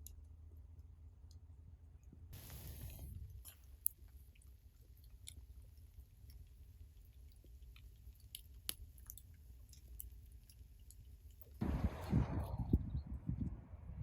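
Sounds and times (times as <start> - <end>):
low background rumble: 0.2 - 14.0
chewing food: 2.4 - 11.6.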